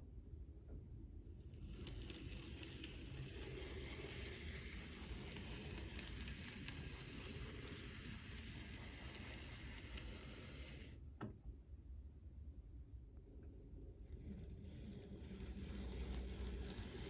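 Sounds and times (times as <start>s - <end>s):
small clicks: 1.6s - 10.9s
model train crackling hiss: 1.6s - 11.0s, 14.3s - 17.0s.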